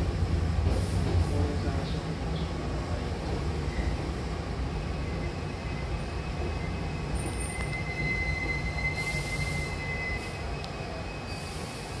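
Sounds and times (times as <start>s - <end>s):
train running rumble: 0.0s - 12.0s
high steady squeal: 5.0s - 12.0s
short hisses: 11.3s - 12.0s.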